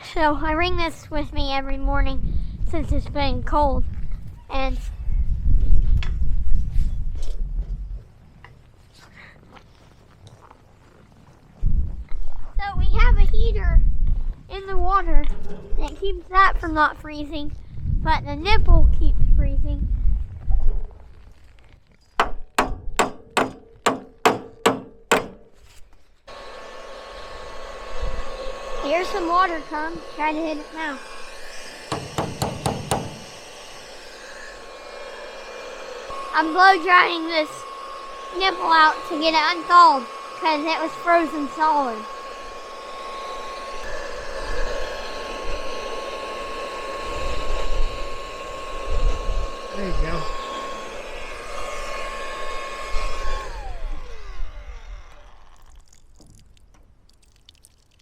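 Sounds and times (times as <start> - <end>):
wind buffeting microphone: 0.3 - 8.1, 11.6 - 21.2, 47.0 - 50.6
sharp ringing knocks: 22.2 - 25.5, 31.9 - 33.3
hair dryer running: 26.3 - 55.6.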